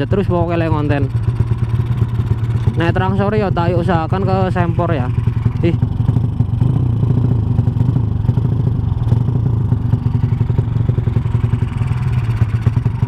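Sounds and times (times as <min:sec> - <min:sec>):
single-cylinder engine running: 0:00.0 - 0:13.0.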